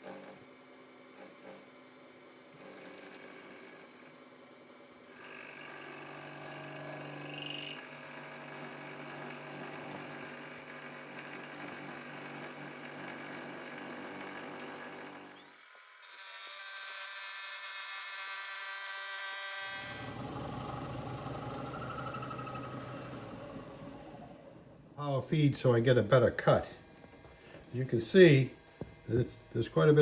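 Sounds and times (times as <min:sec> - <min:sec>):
metal lathe running: 0:19.7 - 0:24.9.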